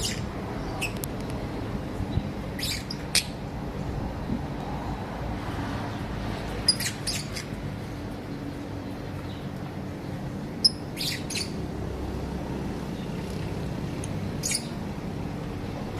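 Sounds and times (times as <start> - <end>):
lovebirds chirping and squawking: 0.0 - 1.1, 2.1 - 3.4, 6.6 - 7.6, 10.6 - 11.6, 14.3 - 14.8.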